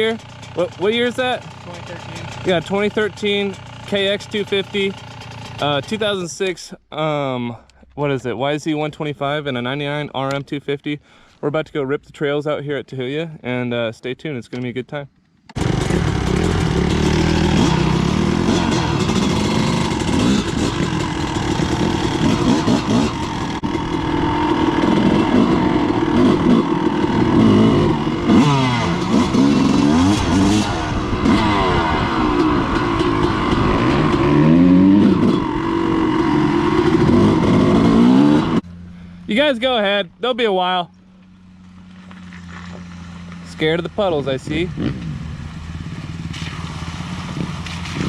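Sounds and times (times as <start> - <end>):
dirt bike engines revving: 0.0 - 6.4, 15.6 - 48.0.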